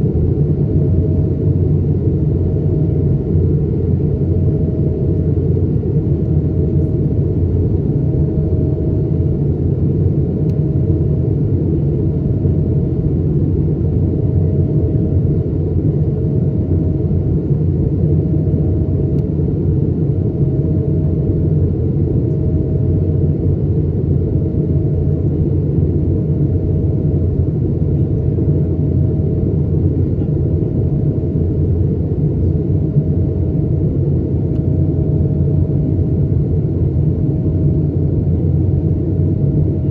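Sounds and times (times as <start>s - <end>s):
airplane cabin engine roar: 0.0s - 39.9s.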